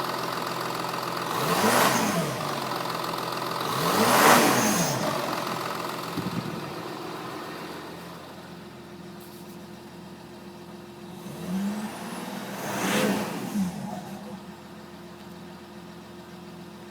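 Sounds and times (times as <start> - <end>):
diesel engine revving: 1.2 - 8.3, 11.0 - 15.0.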